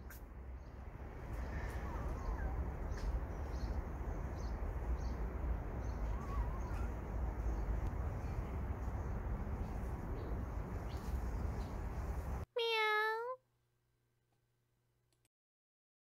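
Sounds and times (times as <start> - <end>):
bird chirps: 0.0 - 8.4
steady low rumble: 0.0 - 12.5.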